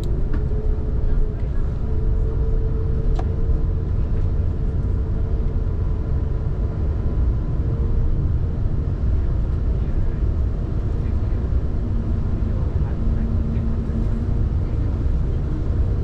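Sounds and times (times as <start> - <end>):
airplane cabin rumble: 0.0 - 16.0
click: 3.1 - 3.3.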